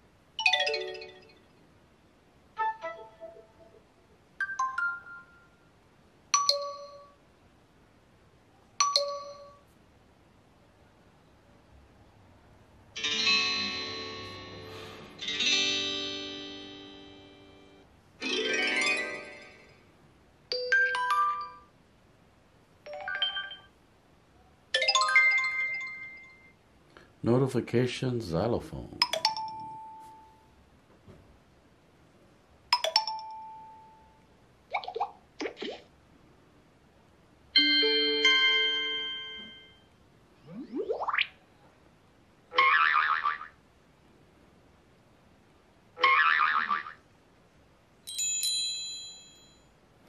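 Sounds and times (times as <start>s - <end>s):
three-note chime: 13.1s - 17.8s, 37.6s - 39.9s
two-note ding-dong chime: 37.6s - 39.9s.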